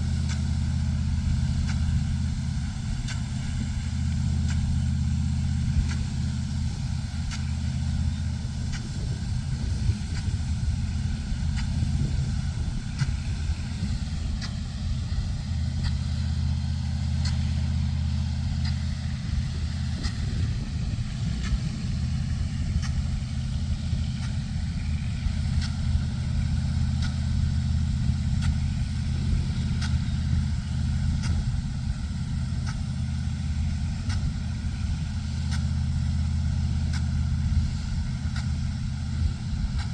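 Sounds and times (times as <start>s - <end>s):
large engine running steadily: 0.0s - 39.9s
faint irregular clicks: 27.0s - 27.2s.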